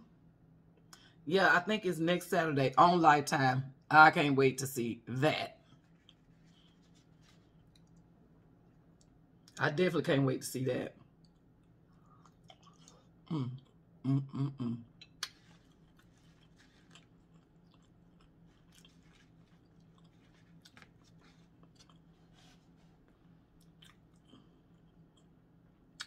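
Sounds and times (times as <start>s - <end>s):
person chewing and lip smacking: 5.6s - 8.2s, 11.0s - 26.0s
wet mouth clicks: 14.6s - 19.0s.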